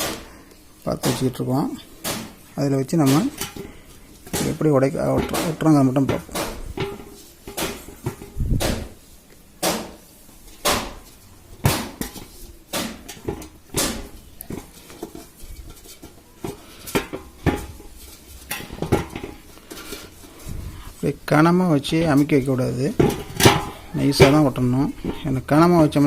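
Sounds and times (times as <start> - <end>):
metal pot clinking and knocking: 3.0 - 9.0, 11.6 - 20.3, 22.9 - 26.0.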